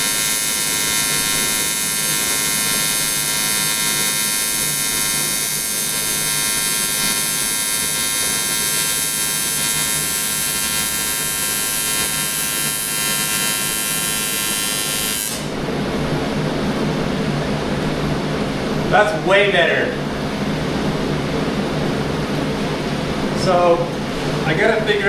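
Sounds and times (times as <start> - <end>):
welding arc buzzing: 0.0 - 15.6.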